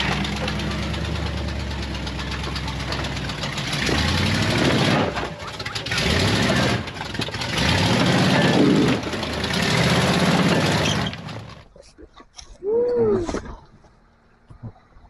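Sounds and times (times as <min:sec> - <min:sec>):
engine revving: 0:00.0 - 0:11.6.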